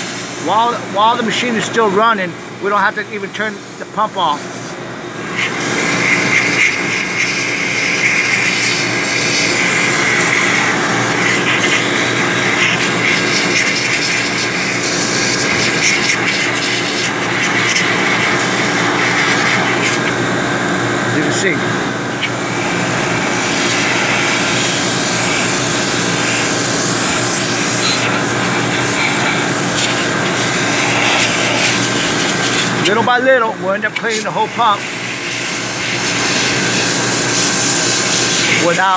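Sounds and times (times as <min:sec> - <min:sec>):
high whine: 0:00.0 - 0:38.9
machinery drone: 0:00.0 - 0:38.9
hiss: 0:05.4 - 0:20.1, 0:22.7 - 0:32.7, 0:34.8 - 0:38.6.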